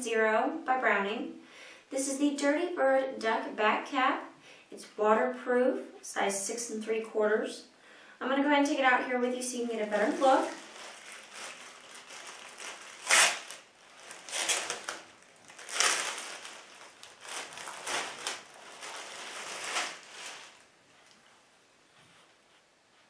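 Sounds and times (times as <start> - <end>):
packaging crinkling and rustling: 9.8 - 21.2.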